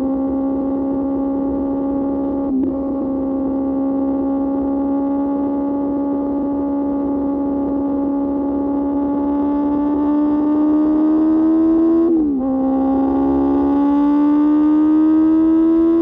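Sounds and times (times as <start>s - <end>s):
motorcycle engine at high revs: 0.0s - 16.0s
wind: 0.0s - 16.0s.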